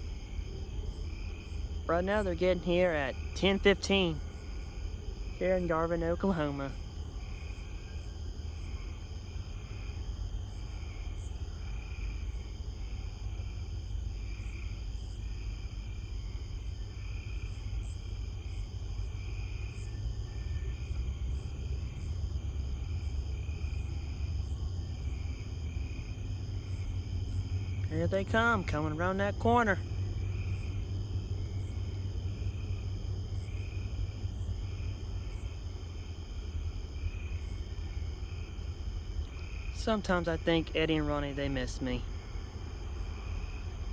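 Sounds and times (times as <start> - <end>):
night insects chirping: 0.0 - 43.9
diesel locomotives rumbling: 20.0 - 35.4.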